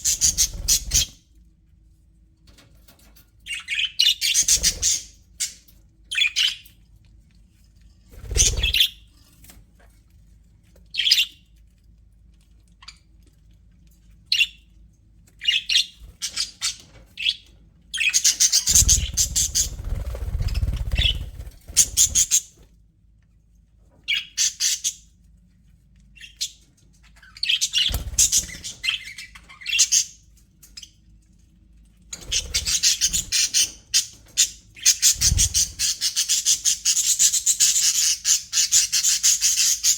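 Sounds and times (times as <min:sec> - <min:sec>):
budgerigars chirping and chattering: 0:00.0 - 0:01.2, 0:03.5 - 0:06.7, 0:08.2 - 0:09.0, 0:15.4 - 0:22.6, 0:24.1 - 0:25.0, 0:26.1 - 0:30.2, 0:32.2 - 0:39.9.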